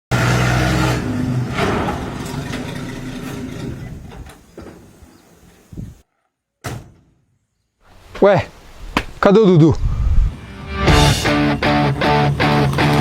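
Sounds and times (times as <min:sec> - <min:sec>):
vehicle engine humming: 0:00.1 - 0:06.0.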